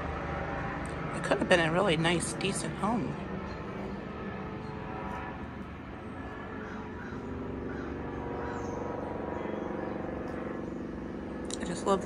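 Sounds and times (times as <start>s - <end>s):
low hum: 0.0s - 12.0s
faint bird calls: 6.4s - 11.0s.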